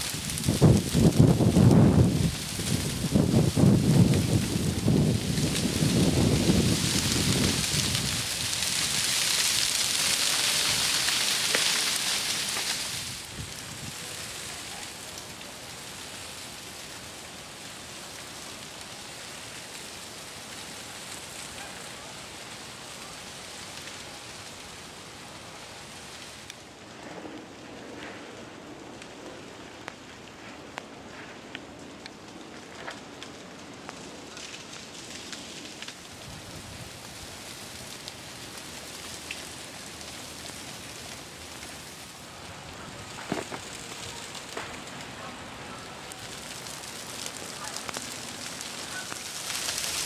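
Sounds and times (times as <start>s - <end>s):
freezing rain hissing: 0.0s - 50.0s.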